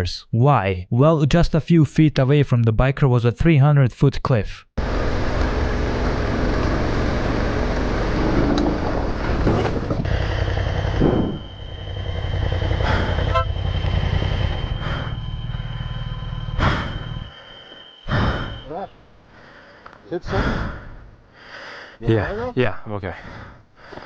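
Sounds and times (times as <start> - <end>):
motorcycle engine running: 4.8 - 17.3
high-pitched whine: 4.8 - 19.0
rushing noise: 4.8 - 19.3
crash knocks: 11.0 - 11.5.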